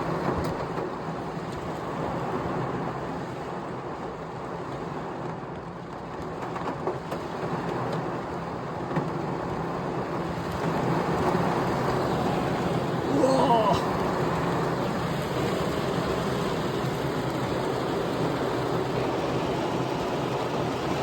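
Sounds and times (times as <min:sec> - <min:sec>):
heavy rain falling: 0:07.3 - 0:21.0.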